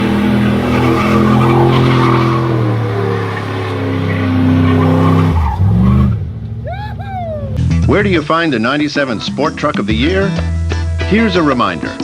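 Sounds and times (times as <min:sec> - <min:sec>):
tires squealing and skidding: 0:00.0 - 0:08.0
vehicle engine revving: 0:00.0 - 0:08.9.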